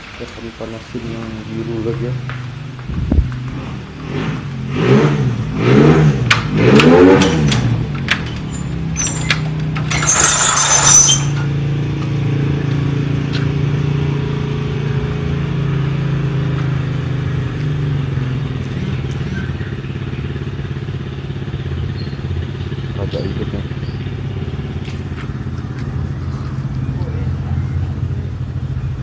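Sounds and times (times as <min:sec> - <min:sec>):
loud rattling clatters: 0:06.3 - 0:11.6
motorcycle engine idling: 0:07.3 - 0:29.0.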